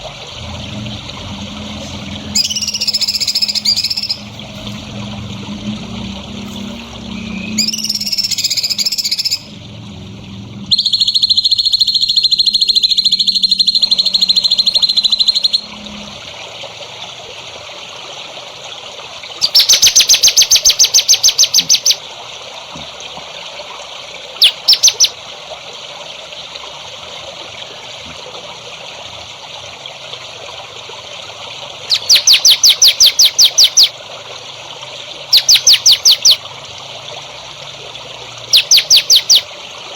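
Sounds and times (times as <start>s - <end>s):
songbird singing: 1.8s - 4.7s, 6.6s - 9.6s, 10.6s - 15.8s, 19.4s - 22.0s, 24.4s - 25.1s, 31.9s - 33.9s, 35.3s - 36.4s, 38.5s - 39.5s.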